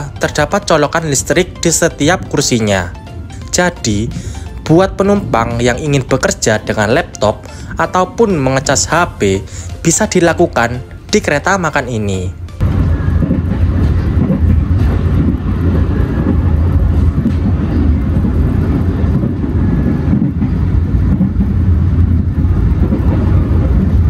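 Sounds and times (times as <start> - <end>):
train wheels rumbling on rails: 12.6 - 24.0.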